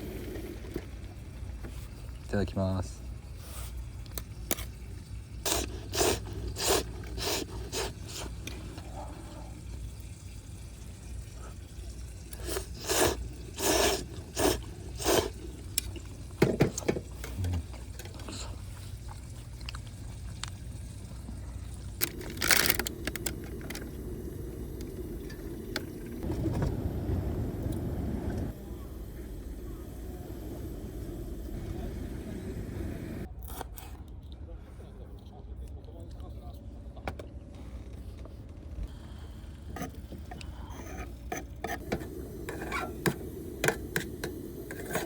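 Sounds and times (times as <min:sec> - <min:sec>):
person slurping food: 0:05.5 - 0:09.1, 0:12.3 - 0:15.6
steady low rumble: 0:21.4 - 0:33.3.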